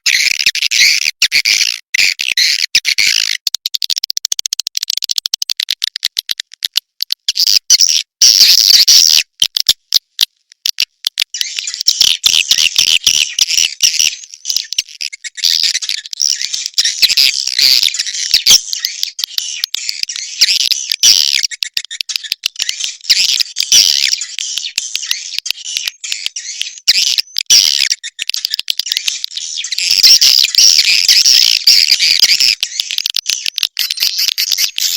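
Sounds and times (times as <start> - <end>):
rapid dry clicking: 3.4 - 7.3, 32.3 - 34.9.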